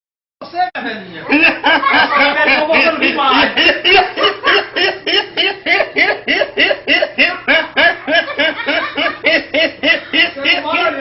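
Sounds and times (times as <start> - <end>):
person laughing: 1.3 - 11.0.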